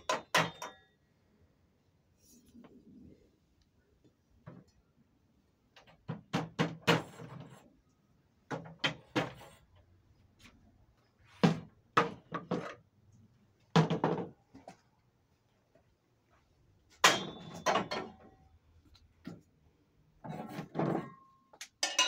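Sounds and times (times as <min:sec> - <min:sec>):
sharp knocks and clanks: 0:00.0 - 0:00.9, 0:17.0 - 0:18.4.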